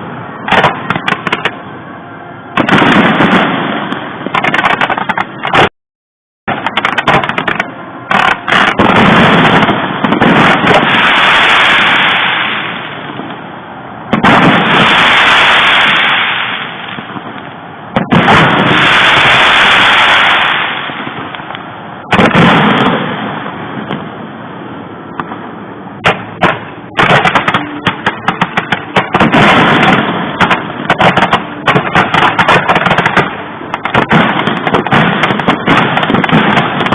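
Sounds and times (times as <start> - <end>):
firework crackle and hiss: 0.0 - 1.6, 2.6 - 5.7, 6.5 - 25.4, 26.0 - 36.9
firework shell bursts: 26.0 - 36.9.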